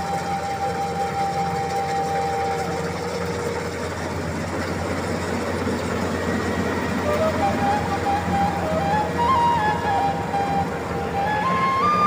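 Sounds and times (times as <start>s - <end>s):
harvester engine humming: 0.0s - 12.0s.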